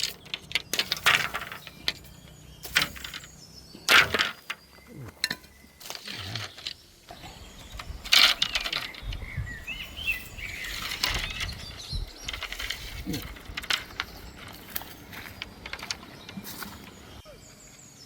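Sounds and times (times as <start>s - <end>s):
sharp knocks and clatters: 0.0s - 6.8s.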